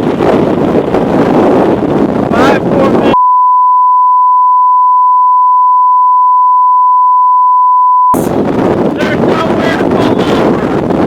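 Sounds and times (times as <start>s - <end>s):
censor bleep: 3.2s - 8.2s.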